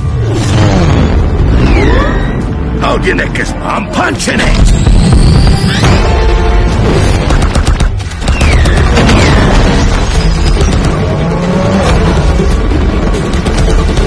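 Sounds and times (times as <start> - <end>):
spaceship engines rumbling: 0.0 - 14.0
orchestral score: 5.6 - 8.2.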